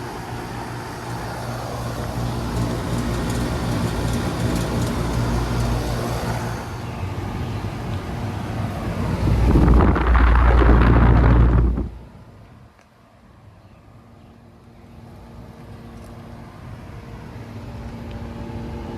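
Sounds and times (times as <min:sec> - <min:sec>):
compressor hum: 0:00.0 - 0:12.2
fan rushing: 0:00.0 - 0:12.3.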